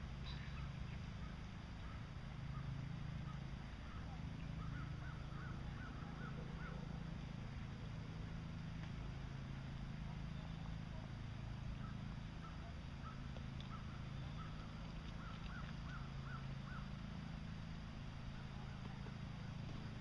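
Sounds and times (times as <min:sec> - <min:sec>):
steady low hum: 0:00.0 - 0:20.0
faint short bird calls: 0:00.2 - 0:07.0, 0:11.7 - 0:17.1.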